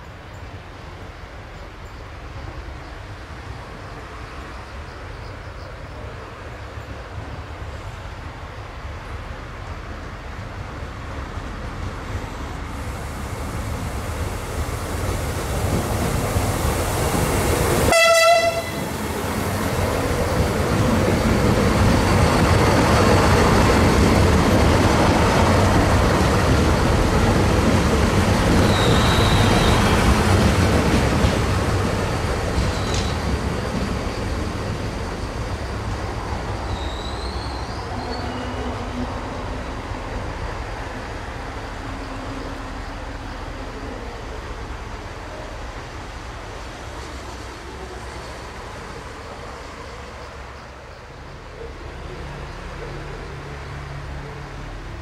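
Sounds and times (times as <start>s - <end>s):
train engine and wheels rumbling: 0.0s - 55.0s
train horn note: 17.9s - 19.0s
brake squeal: 28.6s - 30.1s, 36.7s - 38.8s.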